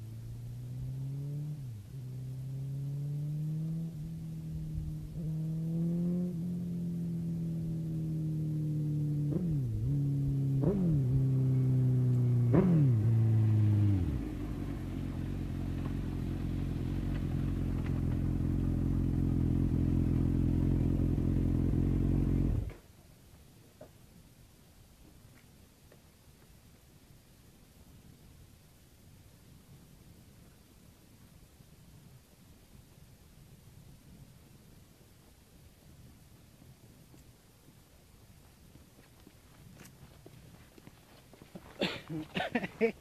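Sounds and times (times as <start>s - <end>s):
motorcycle engine running: 1.8s - 22.8s.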